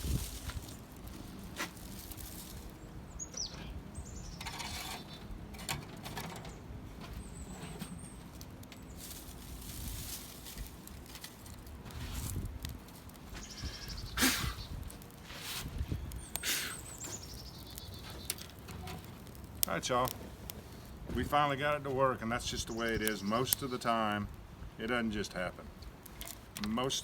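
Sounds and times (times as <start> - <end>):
wind buffeting microphone: 0.0 - 0.9, 11.8 - 12.8, 13.4 - 16.4
dry leaves rustling: 0.0 - 3.5, 6.9 - 23.8
faint bird chirping: 2.5 - 5.3, 13.3 - 14.8, 15.8 - 18.4.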